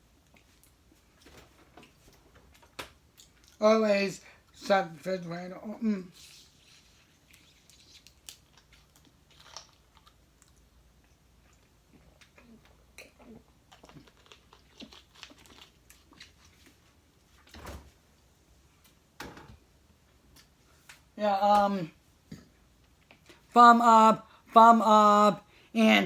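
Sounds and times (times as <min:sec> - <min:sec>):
person chewing food: 0:00.0 - 0:01.0, 0:01.8 - 0:03.6, 0:06.2 - 0:17.3.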